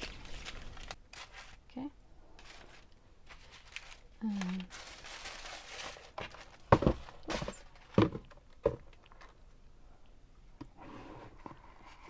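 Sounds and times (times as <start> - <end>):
faint rustling: 0.0 - 8.0.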